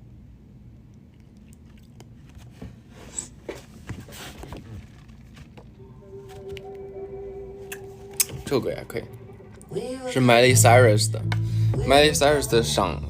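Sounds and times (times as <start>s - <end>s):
person chewing food: 0.8s - 3.4s.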